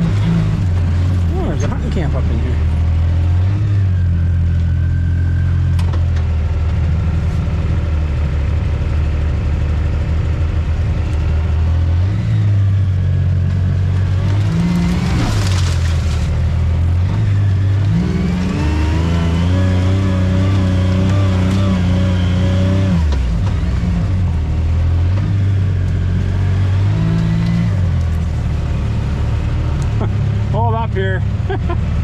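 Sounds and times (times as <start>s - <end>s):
off-road vehicle engine running: 0.0s - 32.0s.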